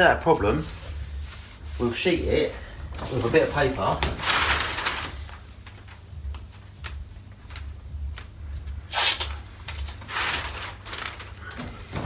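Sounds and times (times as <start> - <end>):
masking paper rustling: 0.0 - 12.0
paper crinkles and taps: 3.0 - 8.7, 9.3 - 12.0
sharp paper crackle: 3.1 - 12.0.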